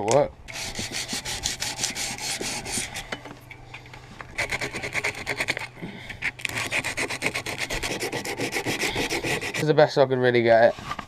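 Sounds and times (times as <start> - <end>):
hand sanding strokes: 0.5 - 3.1, 4.3 - 9.7.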